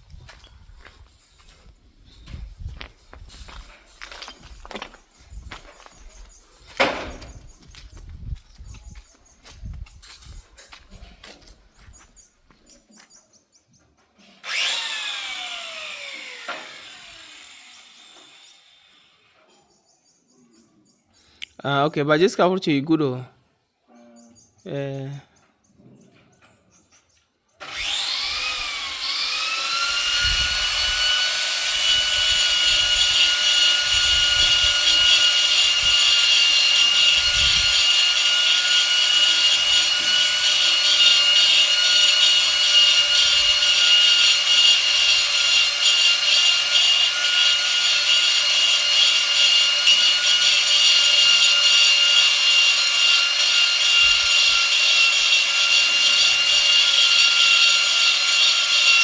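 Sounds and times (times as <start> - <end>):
angle grinder cutting stone: 14.2 - 19.1, 27.6 - 59.0.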